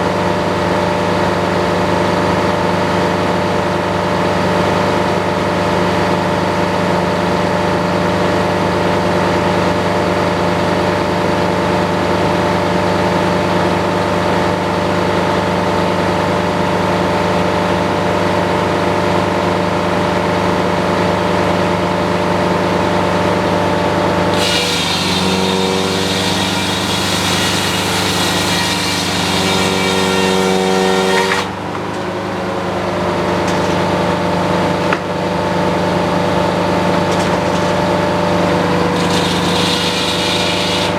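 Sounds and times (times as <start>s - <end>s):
sawmill engine running: 0.0s - 40.9s
saw blade cutting log: 24.2s - 32.2s, 36.2s - 40.9s.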